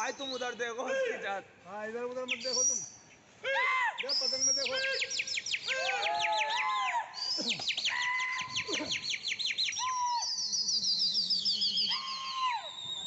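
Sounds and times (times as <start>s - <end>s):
birds chirping: 0.0s - 13.0s
bird whistling clear notes: 9.0s - 13.0s.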